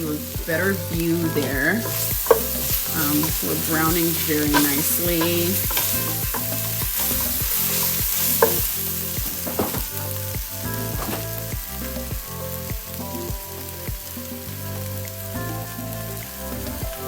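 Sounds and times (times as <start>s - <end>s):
vegetables sizzling in a pot: 0.0s - 17.0s
utensil scraping and knocking: 1.3s - 10.0s.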